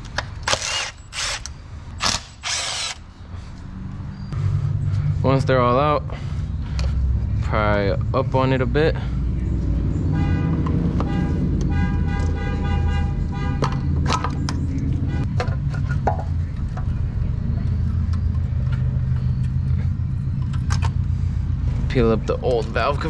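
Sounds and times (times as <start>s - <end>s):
horn-like tone: 10.0s - 13.9s.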